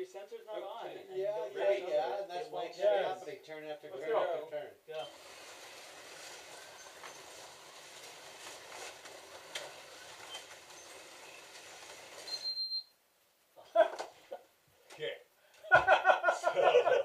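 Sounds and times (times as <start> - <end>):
slot car motors whirring: 5.1 - 12.4
clicking over track joints: 5.1 - 12.5.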